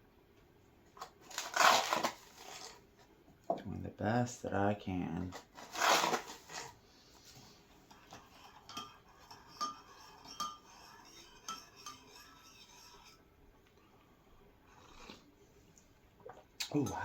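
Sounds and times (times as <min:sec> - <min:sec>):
spoon clinking in mug: 0:08.6 - 0:12.6.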